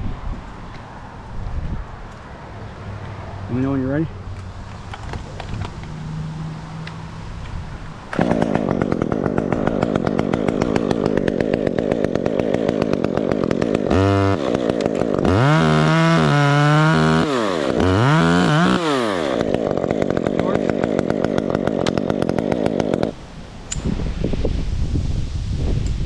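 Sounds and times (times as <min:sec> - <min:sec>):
chainsaw idling and revving: 0:07.8 - 0:23.3.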